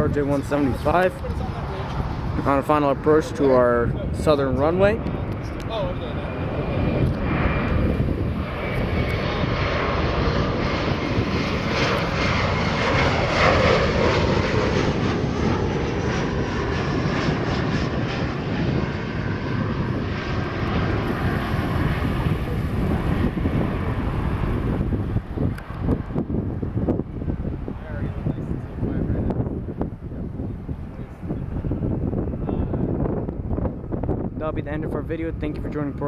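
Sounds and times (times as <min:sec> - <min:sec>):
jet rushing noise: 0:00.0 - 0:32.5
jet engines whining: 0:00.0 - 0:32.8.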